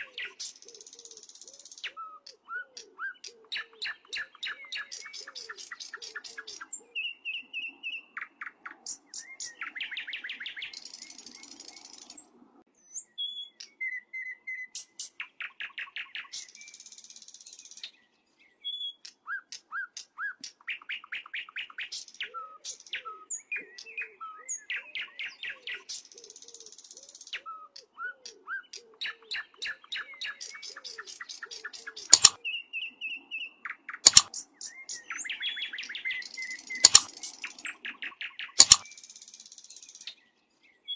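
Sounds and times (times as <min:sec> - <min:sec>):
songbird singing trills: 0:00.0 - 0:40.9
sharp clicks: 0:32.1 - 0:32.4, 0:34.0 - 0:34.3, 0:36.8 - 0:37.2, 0:38.6 - 0:38.8.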